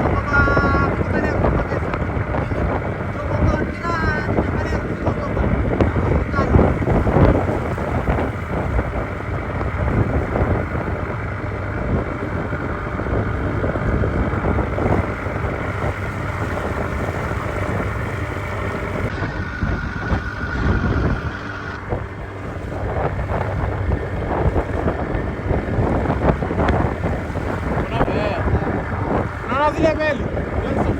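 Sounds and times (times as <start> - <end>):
water rushing along boat hull: 0.0 - 30.9
wind buffeting microphone: 0.0 - 30.9.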